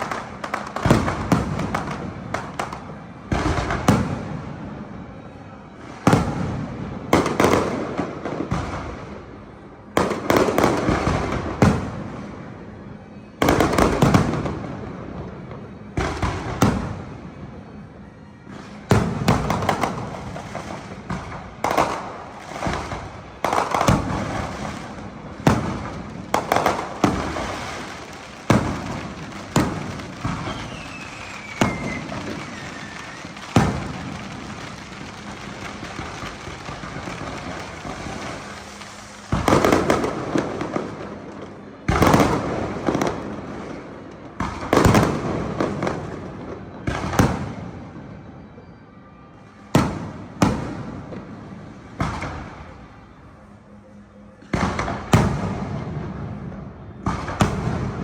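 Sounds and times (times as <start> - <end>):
firework bangs with crackling: 0.0 - 48.2, 49.4 - 52.8, 54.4 - 58.0
faint falling whistle: 30.2 - 33.6.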